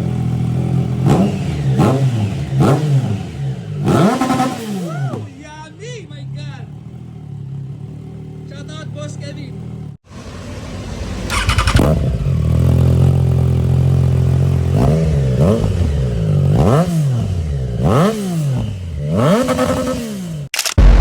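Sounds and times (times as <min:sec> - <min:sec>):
motorcycle engine idling and revving: 0:00.0 - 0:21.0.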